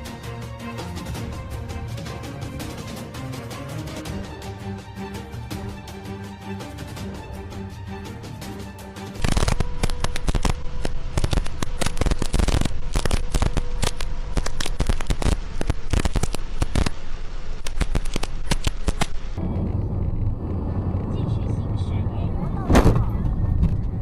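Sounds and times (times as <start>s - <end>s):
music: 0.0s - 15.3s
rapid sharp cracks and bangs: 9.2s - 17.0s, 17.6s - 19.4s.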